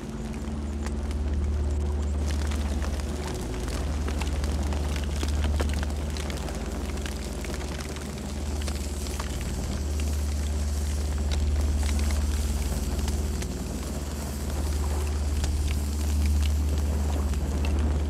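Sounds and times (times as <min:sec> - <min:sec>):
burning wood crackling and popping: 0:00.0 - 0:18.0
low rumble of flames: 0:00.0 - 0:18.0.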